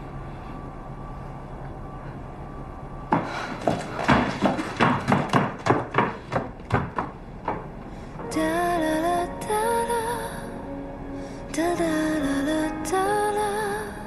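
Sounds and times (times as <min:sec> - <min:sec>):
music: 0:08.2 - 0:14.0.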